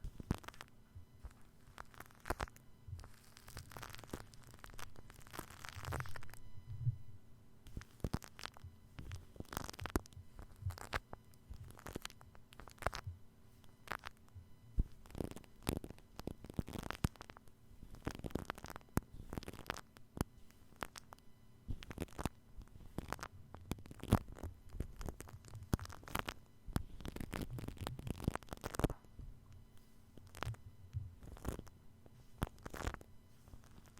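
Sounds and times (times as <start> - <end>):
shaving foam crackling and squishing: 0.0 - 6.4, 7.7 - 14.2, 14.8 - 21.1, 21.7 - 29.1, 31.2 - 33.9
microphone handling rumbles: 5.7 - 7.2.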